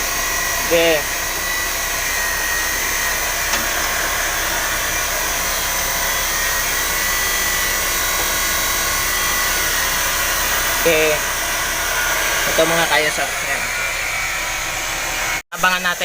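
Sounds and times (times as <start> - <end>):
machine whirring and hissing: 0.0 - 15.4.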